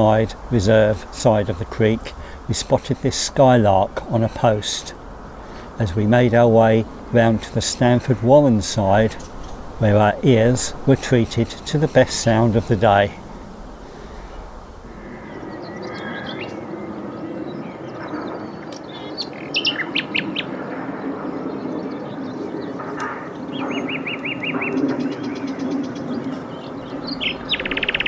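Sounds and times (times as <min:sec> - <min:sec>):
low steady background hum: 0:00.0 - 0:15.5
nightingales singing: 0:00.0 - 0:16.4, 0:26.8 - 0:28.0.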